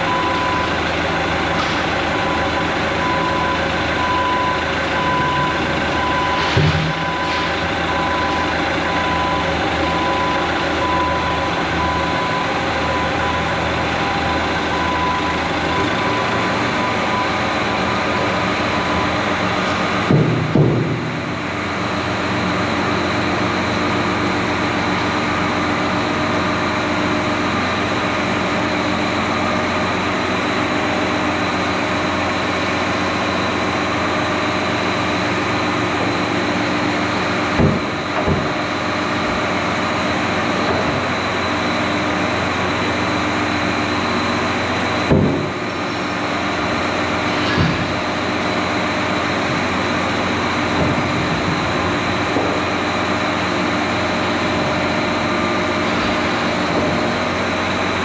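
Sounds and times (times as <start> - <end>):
excavator diesel engine running: 0.0 - 58.0
heavy clunks: 19.6 - 21.4, 37.3 - 39.6, 40.5 - 41.2, 44.9 - 45.7, 47.3 - 48.1, 50.7 - 52.8.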